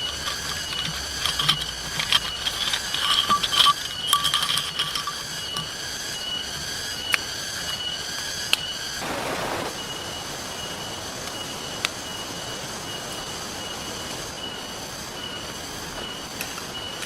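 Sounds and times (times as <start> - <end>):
high pulsing whine: 8.6 - 17.0
rain hissing: 8.8 - 11.2
campfire popping: 9.0 - 9.8
river flowing: 9.0 - 10.5.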